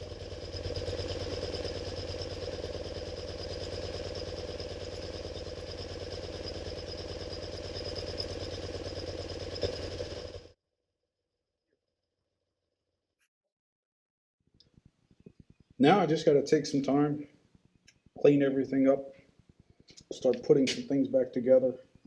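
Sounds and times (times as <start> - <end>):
motorcycle engine idling: 0.0 - 10.6.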